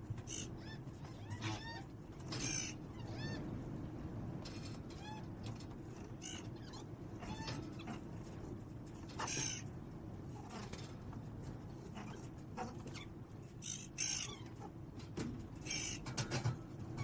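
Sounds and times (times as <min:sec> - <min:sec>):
steady low hum: 0:00.0 - 0:17.0
harsh bird calls: 0:00.2 - 0:03.5, 0:06.1 - 0:08.1, 0:09.1 - 0:09.8, 0:12.0 - 0:14.8, 0:15.6 - 0:16.3.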